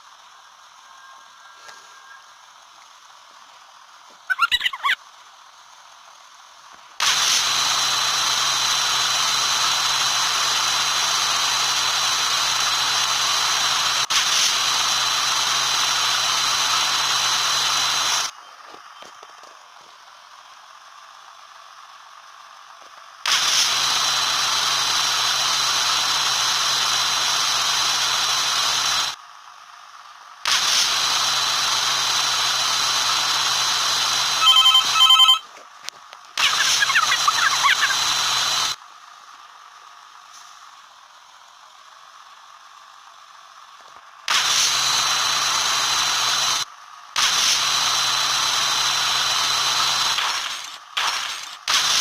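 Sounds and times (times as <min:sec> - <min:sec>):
small electric motor running: 0:00.0 - 0:35.5, 0:36.3 - 0:52.0
squeaky rattle: 0:04.3 - 0:05.0.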